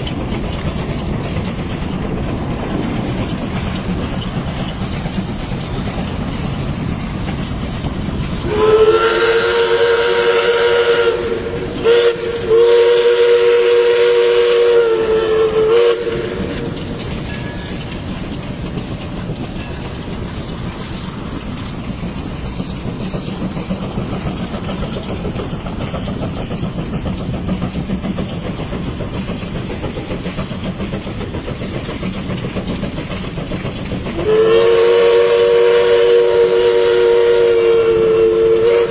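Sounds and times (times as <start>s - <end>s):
train rolling noise: 0.0s - 38.9s
steam locomotive whistle: 7.7s - 17.8s, 34.1s - 38.9s.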